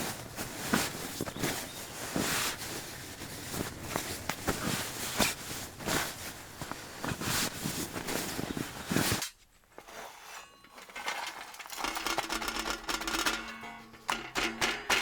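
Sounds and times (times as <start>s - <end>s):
footsteps crunching on ground: 0.0s - 9.2s.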